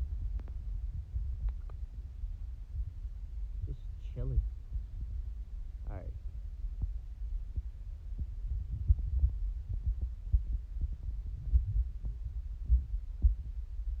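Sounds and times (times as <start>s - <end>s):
microphone handling thumps: 0.0s - 3.0s, 6.2s - 14.0s.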